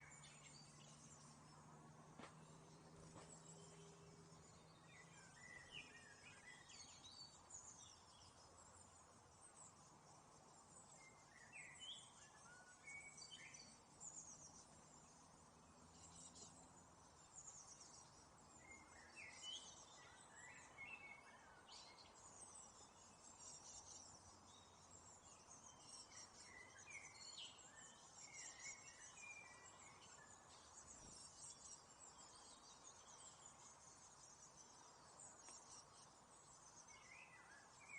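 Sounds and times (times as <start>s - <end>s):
small birds chirping: 0.0s - 37.9s.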